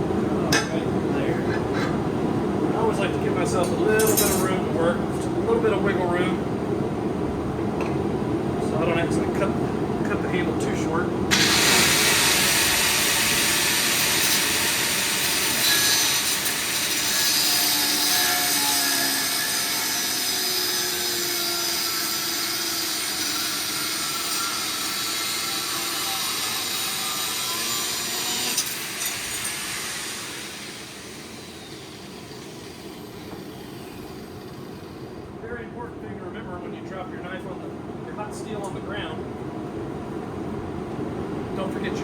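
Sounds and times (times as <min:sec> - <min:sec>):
power tool cutting steel: 0:11.3 - 0:35.1.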